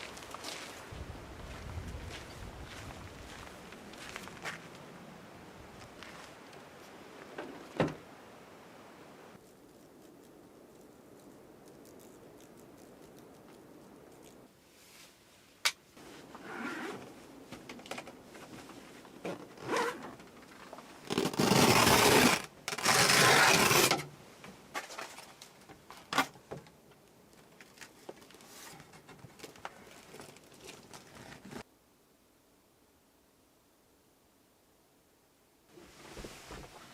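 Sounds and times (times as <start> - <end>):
light rustling and scraping: 9.4 - 21.5, 27.4 - 31.6, 35.8 - 36.9.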